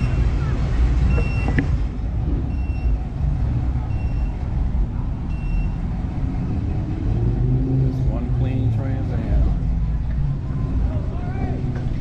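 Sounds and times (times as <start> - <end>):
low rumble of vehicle engines: 0.0 - 12.0
engine rising in pitch: 2.2 - 11.6.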